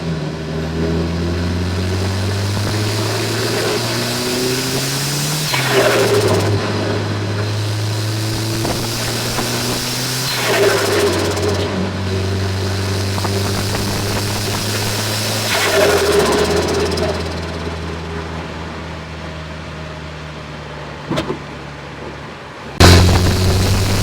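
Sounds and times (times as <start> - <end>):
car engine running: 0.0 - 19.9, 22.8 - 24.0
turbo flutter: 1.3 - 18.3, 22.8 - 24.0.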